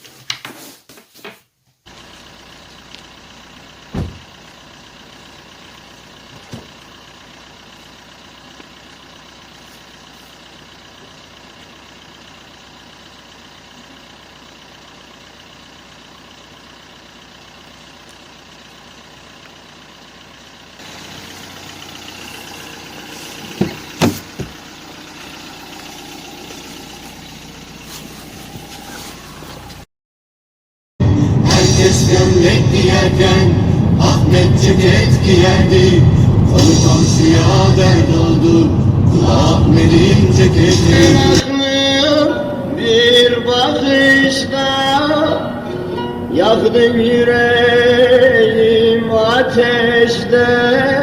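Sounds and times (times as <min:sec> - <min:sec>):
road vehicle engine hum: 0:01.8 - 0:29.9, 0:31.0 - 0:51.0
sharp knocks: 0:23.5 - 0:24.6.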